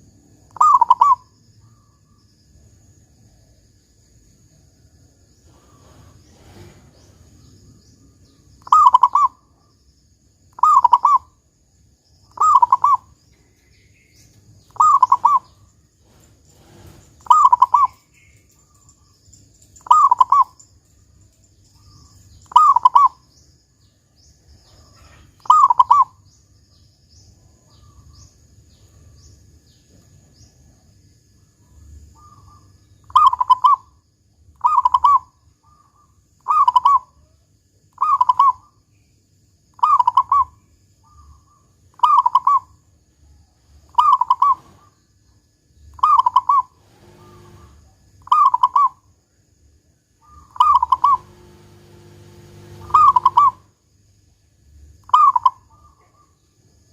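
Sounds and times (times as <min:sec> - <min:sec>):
dove cooing: 0:00.5 - 0:01.2, 0:08.6 - 0:09.4, 0:10.6 - 0:11.3, 0:12.4 - 0:13.1, 0:14.7 - 0:18.0, 0:19.8 - 0:20.6, 0:21.8 - 0:23.2, 0:24.6 - 0:26.2, 0:32.2 - 0:33.9, 0:34.6 - 0:35.8, 0:39.8 - 0:40.5, 0:42.0 - 0:42.7, 0:43.9 - 0:45.0, 0:46.0 - 0:49.0, 0:50.2 - 0:53.7.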